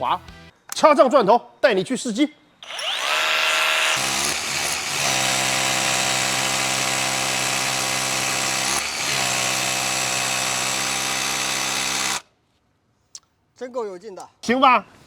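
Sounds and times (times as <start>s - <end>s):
rotary hammer motor running: 2.6s - 12.2s.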